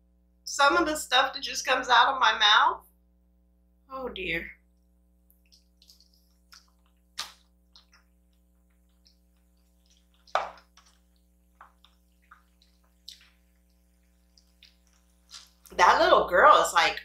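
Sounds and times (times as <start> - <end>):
faint electrical hum: 0.0 - 17.0
wet chewing and mouth smacks: 4.8 - 15.8.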